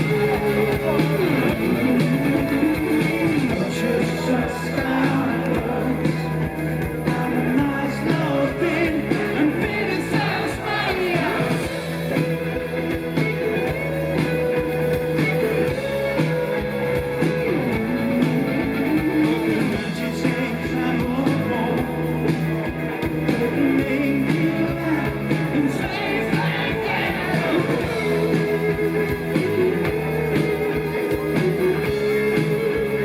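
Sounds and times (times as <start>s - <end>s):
electric guitar melody: 0.0s - 33.0s
live rock band playing: 0.0s - 33.0s
person singing: 2.6s - 11.9s, 17.3s - 22.0s, 23.3s - 33.0s.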